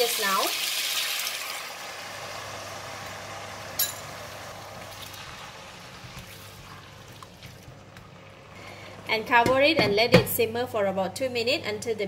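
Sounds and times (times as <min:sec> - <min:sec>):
food sizzling in a wok: 0:00.0 - 0:06.6.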